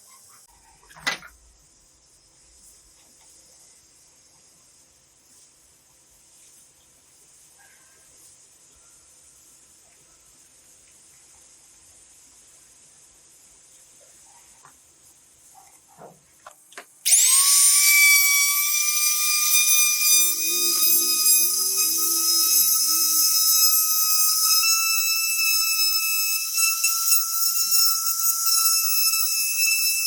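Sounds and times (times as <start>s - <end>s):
electric motor whine: 17.1s - 30.0s.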